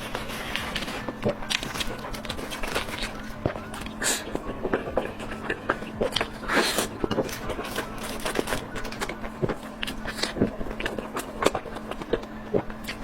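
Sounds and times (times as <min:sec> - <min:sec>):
chewing with wet smacks: 0:00.0 - 0:13.0
faint steady hum: 0:00.0 - 0:13.0.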